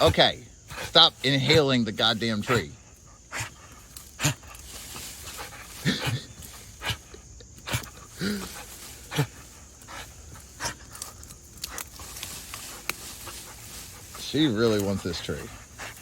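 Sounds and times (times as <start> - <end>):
dog panting: 0.0 - 16.0
wood cracking and snapping: 10.4 - 13.4.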